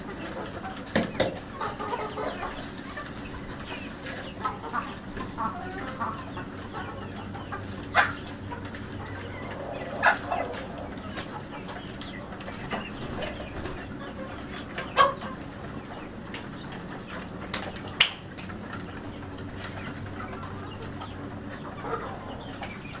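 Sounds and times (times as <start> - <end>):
chickens clucking: 0.0 - 23.0
steady low hum: 6.0 - 14.8.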